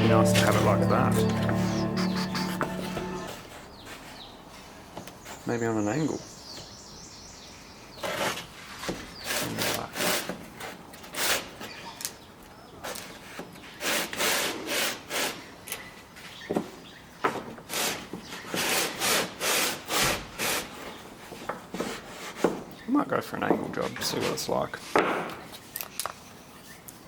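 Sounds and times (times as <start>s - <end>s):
hand saw cutting wood: 8.0s - 11.7s, 12.9s - 15.5s, 17.6s - 21.0s.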